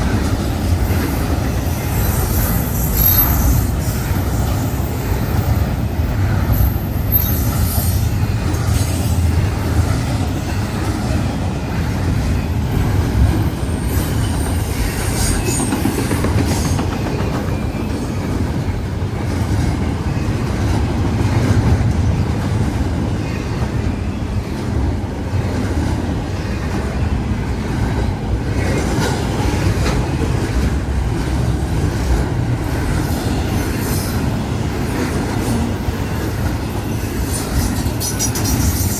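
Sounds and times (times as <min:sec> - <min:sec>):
train rumbling on rails: 0:00.0 - 0:38.9
high wheel squeals: 0:01.6 - 0:05.7, 0:32.8 - 0:38.9.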